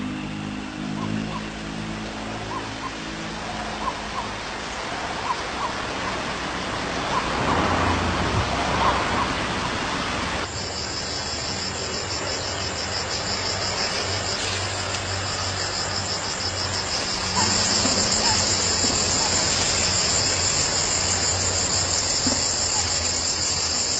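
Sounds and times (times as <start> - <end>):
insects trilling: 10.4 - 23.9.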